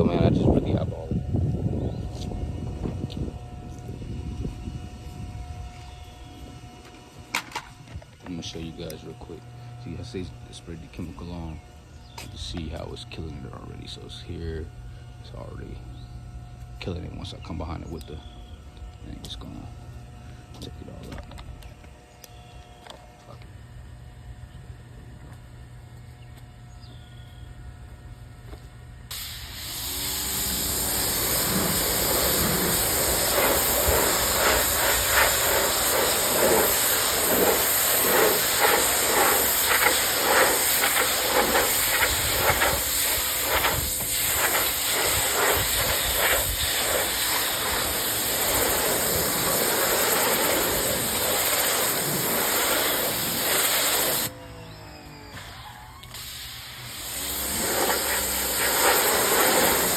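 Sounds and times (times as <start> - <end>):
pressure washer spraying: 29.1 - 54.3, 56.2 - 59.9.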